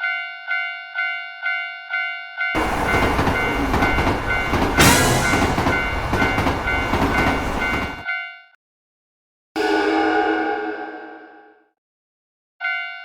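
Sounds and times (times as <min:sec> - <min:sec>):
level crossing warning bell: 0:00.0 - 0:08.4
train rushing past: 0:02.6 - 0:08.0.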